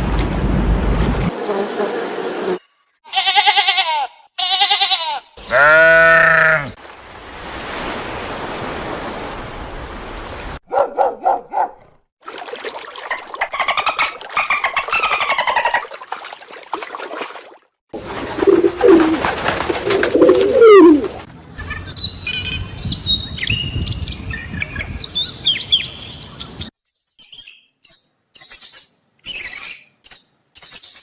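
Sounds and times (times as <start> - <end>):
quavering animal calls: 5.4 - 6.8, 18.2 - 21.2
rapid animal call pulses: 18.0 - 21.3
animal calls sliding in pitch: 18.4 - 21.2.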